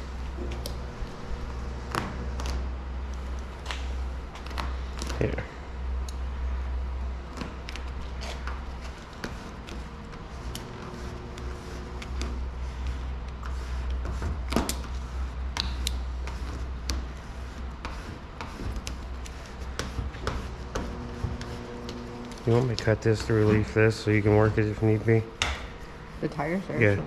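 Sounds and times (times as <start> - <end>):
steady low hum: 0.0 - 27.0
vinyl film ticks and rustles: 21.3 - 23.4.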